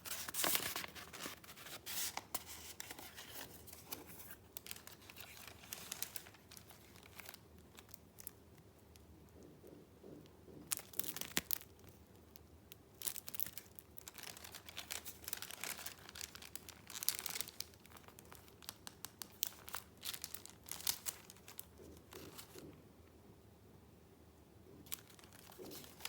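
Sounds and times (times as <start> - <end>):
paper rustling and crinkling: 0.0 - 8.3, 13.0 - 22.8, 24.9 - 26.0.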